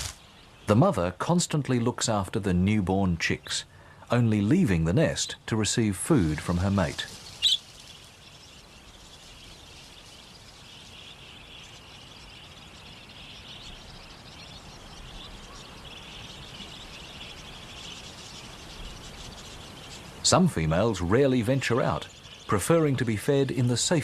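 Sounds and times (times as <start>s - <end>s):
budgerigar flock chatter: 6.2s - 24.0s
budgerigar chirp: 7.1s - 23.5s.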